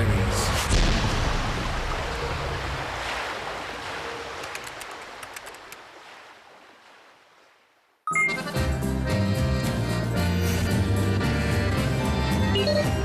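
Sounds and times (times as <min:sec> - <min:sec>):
sea waves rushing: 0:00.0 - 0:08.8.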